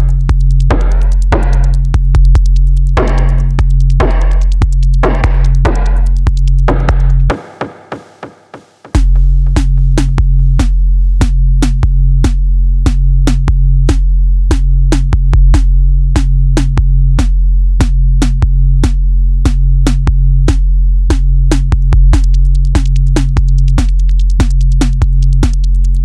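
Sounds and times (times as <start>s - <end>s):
electronic music on car stereo: 0.0s - 14.0s, 21.4s - 26.0s.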